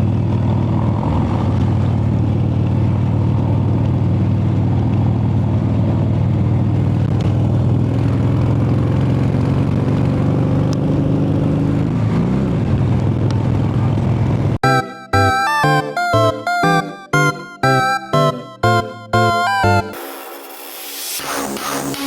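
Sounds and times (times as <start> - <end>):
motorcycle engine running: 0.0 - 14.6
guitar music: 14.6 - 20.0.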